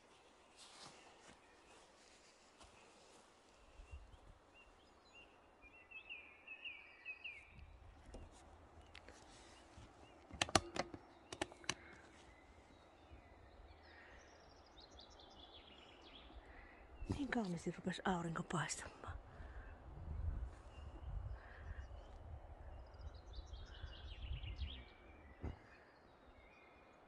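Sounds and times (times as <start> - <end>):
small bird singing: 3.1 - 18.7, 19.5 - 27.0
sharp clicks or knocks: 10.2 - 12.0.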